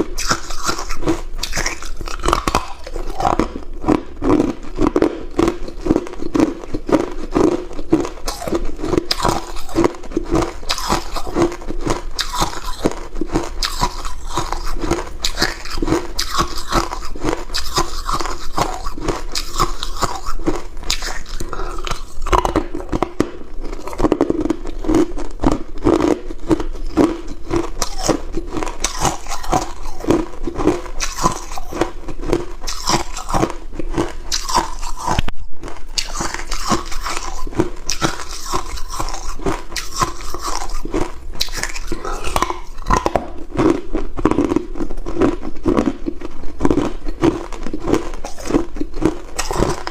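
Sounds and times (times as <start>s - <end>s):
ice crunching being chewed: 0.0s - 49.9s.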